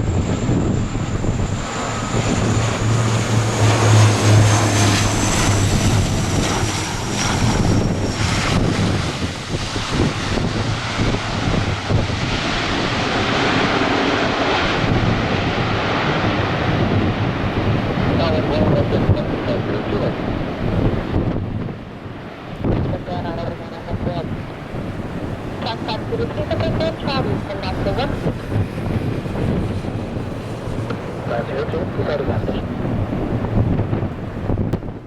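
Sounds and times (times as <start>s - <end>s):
low engine rumble: 0.0s - 9.8s
jet engine whine: 0.0s - 35.0s
wind buffeting microphone: 0.0s - 35.0s.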